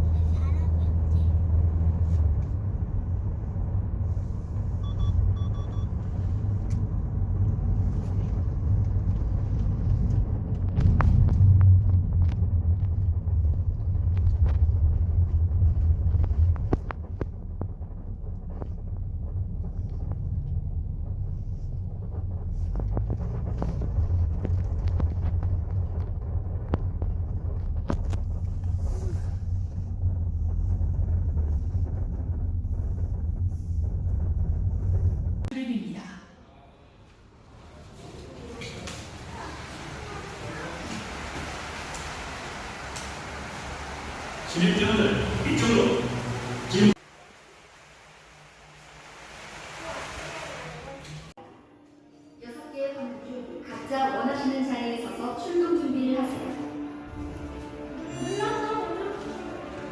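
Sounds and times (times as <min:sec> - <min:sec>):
car road and engine rumble: 0:00.0 - 0:35.6, 0:39.0 - 0:51.4.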